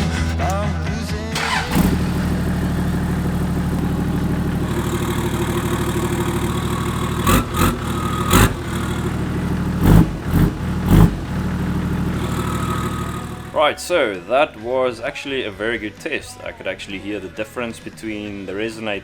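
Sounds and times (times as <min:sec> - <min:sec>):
diesel engine idling: 0:01.4 - 0:13.6
engine revving in bursts: 0:01.4 - 0:13.6.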